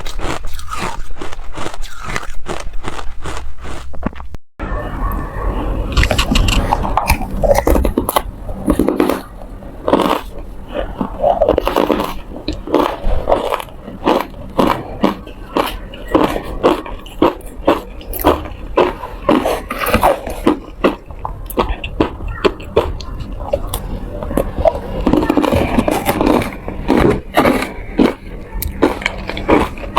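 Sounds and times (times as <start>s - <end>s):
ice being chewed: 0.0s - 4.3s, 5.9s - 29.9s.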